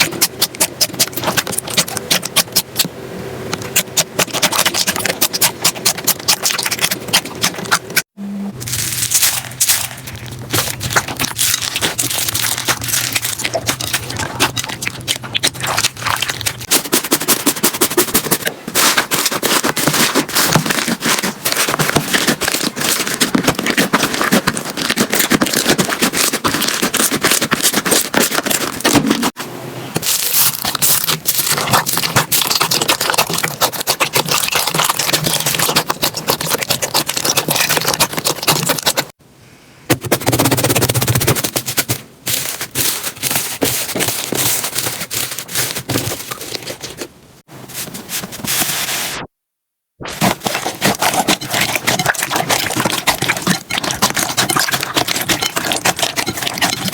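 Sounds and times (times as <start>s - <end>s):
slime crackling and popping: 8.6s - 29.3s, 30.0s - 39.1s, 50.2s - 56.9s.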